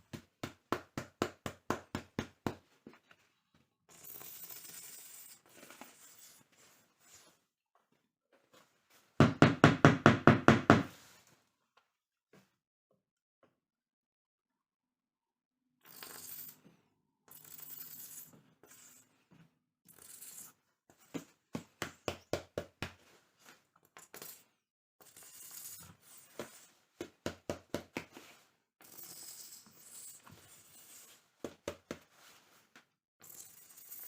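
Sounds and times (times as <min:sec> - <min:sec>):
rattan cane rustling and scraping: 0:28.1 - 0:32.9.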